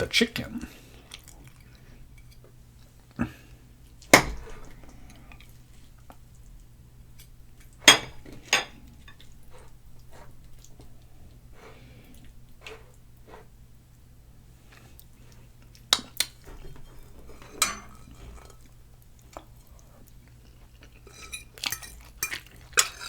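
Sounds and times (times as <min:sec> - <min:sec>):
cutlery clinking on a plate: 0:07.9 - 0:09.2, 0:16.0 - 0:18.7, 0:21.0 - 0:23.0.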